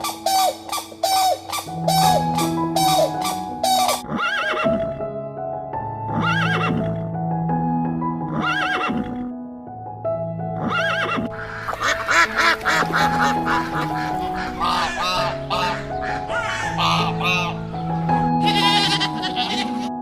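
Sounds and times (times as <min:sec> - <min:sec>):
background music: 0:00.0 - 0:20.0
horse whinnying: 0:03.4 - 0:04.9, 0:08.3 - 0:09.2, 0:10.6 - 0:11.3.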